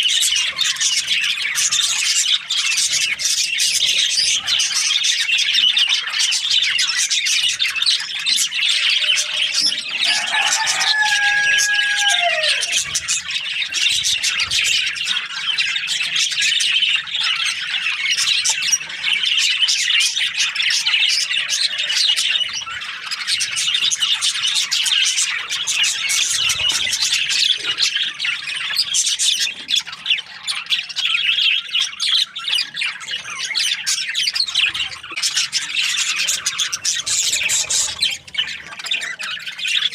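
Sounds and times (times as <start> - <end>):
budgerigars chattering: 0.0 - 39.9
low drawn-out bird call: 8.8 - 13.0.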